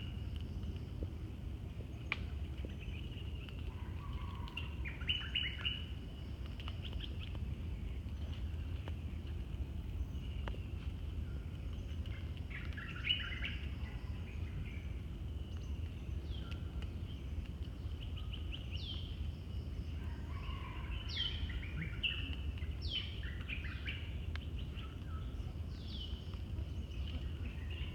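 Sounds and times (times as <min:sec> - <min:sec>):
forest birds calling: 0:01.9 - 0:07.4, 0:10.0 - 0:27.9.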